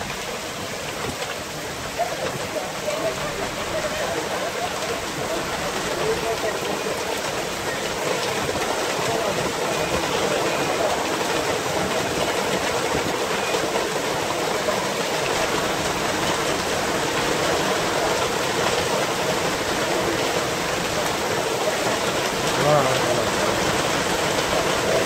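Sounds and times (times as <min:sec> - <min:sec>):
heavy rain on street: 0:00.0 - 0:25.0.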